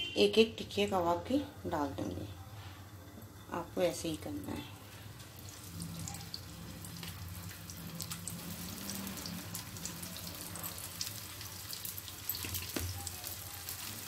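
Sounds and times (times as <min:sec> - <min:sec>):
patties sizzling in oil: 0:02.9 - 0:14.0
oil crackling: 0:04.5 - 0:14.0.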